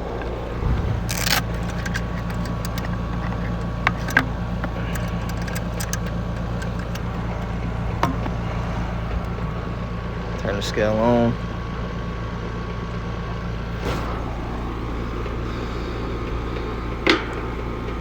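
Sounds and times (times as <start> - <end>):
air conditioner humming: 0.0 - 11.9, 13.4 - 18.0
tools clicking: 1.1 - 8.4.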